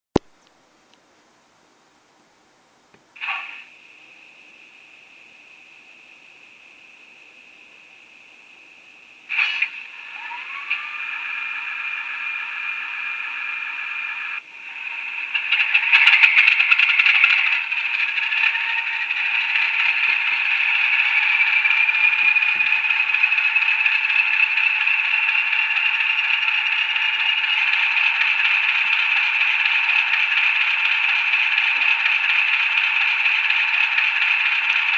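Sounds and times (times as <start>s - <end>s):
diesel engine through small speaker: 3.2s - 34.9s.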